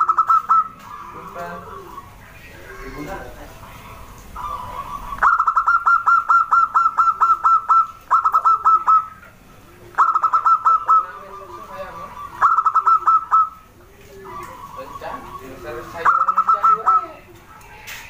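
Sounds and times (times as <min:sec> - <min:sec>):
dove staccato cooing: 0:00.0 - 0:18.0.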